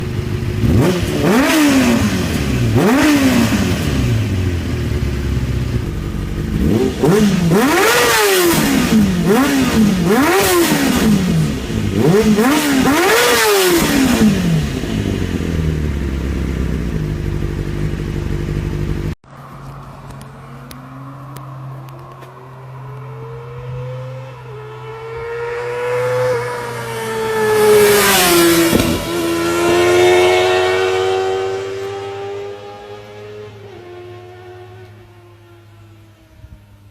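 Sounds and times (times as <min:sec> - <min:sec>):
motorcycle engine revving: 0:00.0 - 0:35.9
motorcycle accelerating past: 0:20.2 - 0:35.9.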